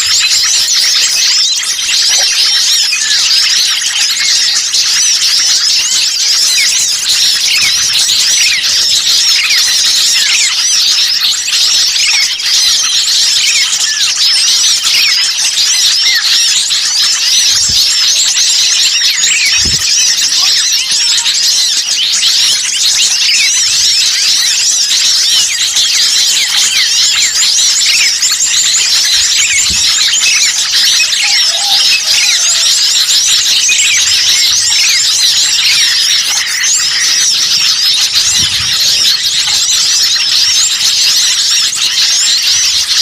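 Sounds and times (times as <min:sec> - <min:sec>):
songbirds chirping and twittering: 0:00.0 - 0:43.0.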